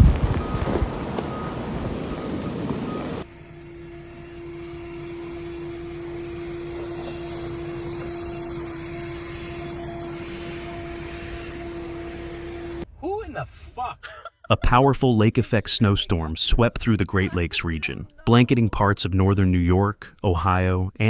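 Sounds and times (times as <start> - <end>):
steady mechanical hum: 0.0 - 12.8.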